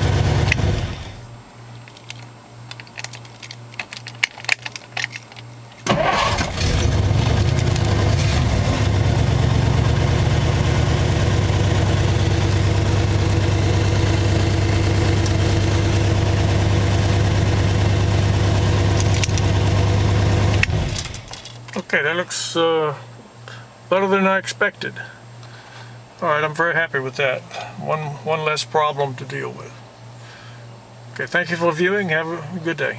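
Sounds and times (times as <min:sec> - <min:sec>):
car engine starting and running: 0:00.0 - 0:01.3, 0:05.8 - 0:21.6
clicks: 0:15.0 - 0:15.5.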